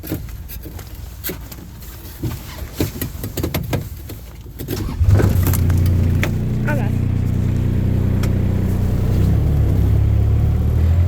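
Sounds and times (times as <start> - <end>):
sharp clicks and knocks: 2.8 - 6.6
car engine idling: 4.6 - 11.0.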